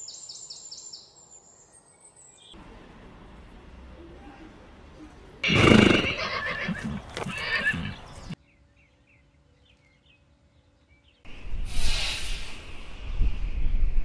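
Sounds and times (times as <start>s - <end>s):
rush of outdoor noise: 1.2s - 8.8s, 11.2s - 14.0s
loud animal call: 5.4s - 8.4s.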